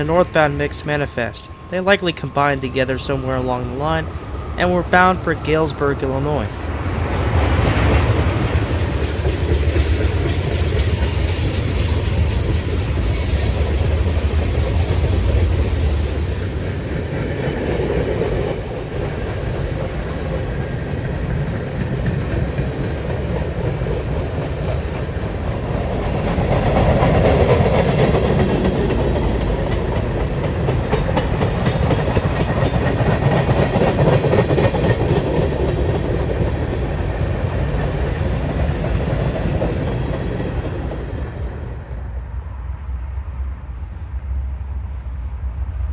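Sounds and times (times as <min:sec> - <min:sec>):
heavy low train rumble: 0:00.0 - 0:45.9
train wheels clattering over rail joints: 0:06.6 - 0:41.8.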